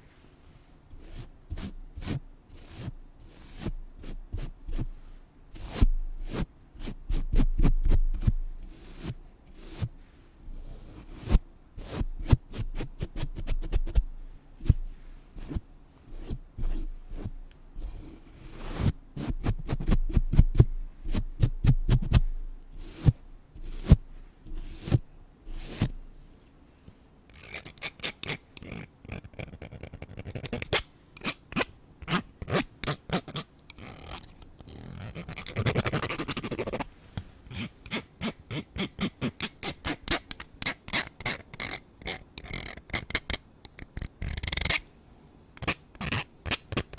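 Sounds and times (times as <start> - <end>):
crickets chirring: 0.0 - 46.9
brushing: 15.0 - 19.8, 22.8 - 44.8, 45.6 - 46.9
close scratching and clicking: 27.3 - 44.8, 45.6 - 46.9.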